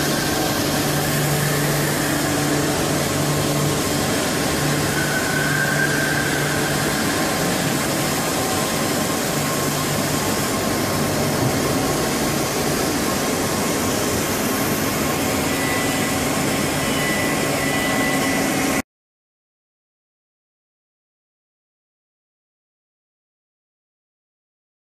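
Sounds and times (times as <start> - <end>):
thin high tone: 0.0 - 11.3, 12.3 - 18.8
lathe machine humming: 0.0 - 18.8.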